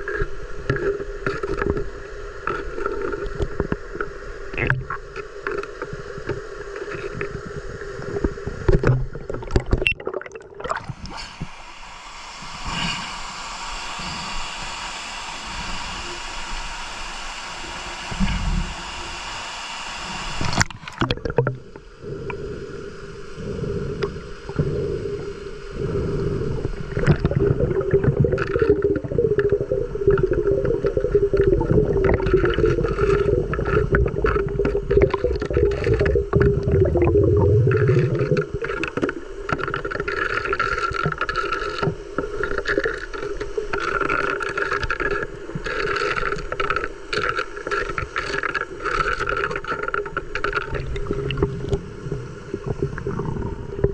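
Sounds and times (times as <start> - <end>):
muffled underwater gurgling: 0.0 - 11.4, 20.1 - 53.9.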